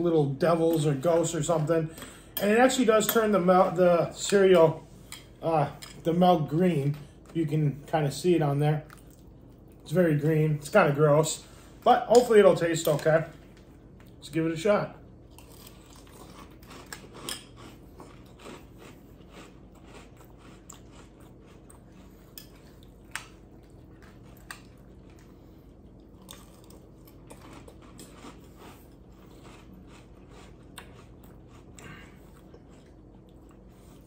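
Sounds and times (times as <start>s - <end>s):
cereal crunching in mouth: 15.3s - 25.2s, 25.9s - 33.7s.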